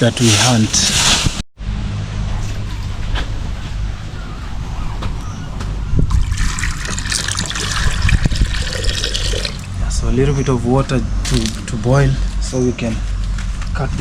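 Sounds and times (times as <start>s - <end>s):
steady low rumble: 0.7s - 14.0s
water pouring into a pot: 6.2s - 9.7s.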